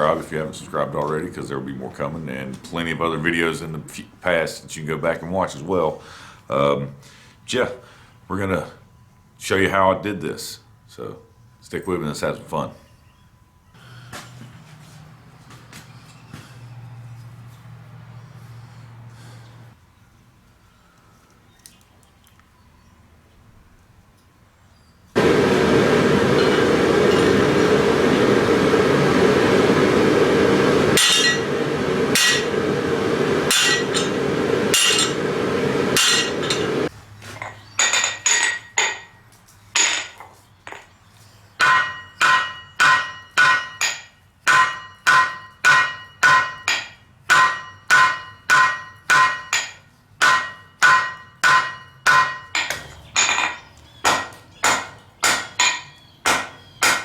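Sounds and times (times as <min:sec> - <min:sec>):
hammer striking steel on anvil: 0:25.2 - 0:36.9, 0:41.6 - 0:57.0
loud steady rushing noise: 0:25.2 - 0:36.9.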